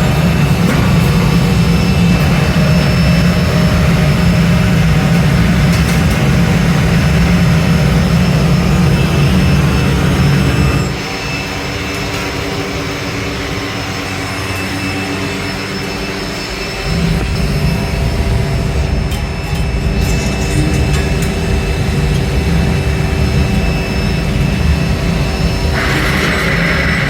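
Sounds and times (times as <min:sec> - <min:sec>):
strong low hum: 0:00.0 - 0:11.0, 0:16.6 - 0:27.0
factory machinery noise: 0:00.0 - 0:27.0.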